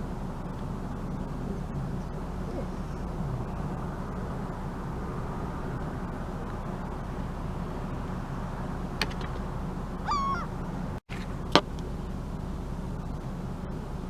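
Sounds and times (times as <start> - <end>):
steady low rumble: 0.0 - 14.0
gull call: 9.0 - 11.8.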